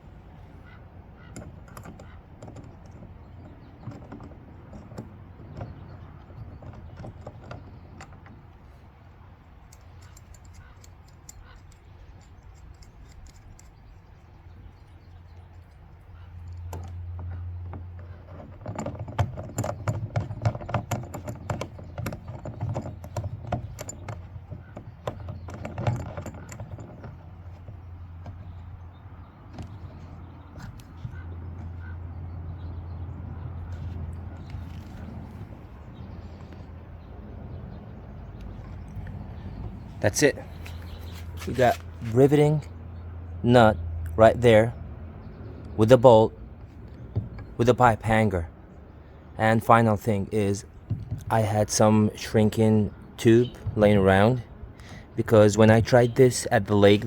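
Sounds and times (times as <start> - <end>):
metal hardware and tools rattling: 1.2 - 36.8, 38.2 - 42.8.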